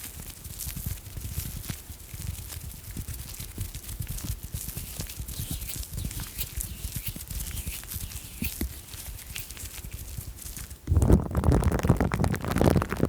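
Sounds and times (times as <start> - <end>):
plastic film crackle: 0.0 - 10.8
tongue and mouth clicks: 3.2 - 10.7.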